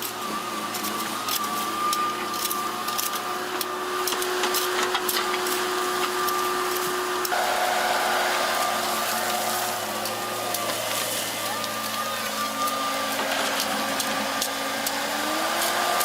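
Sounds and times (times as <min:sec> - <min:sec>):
machine running with high whine: 0:05.3 - 0:16.0.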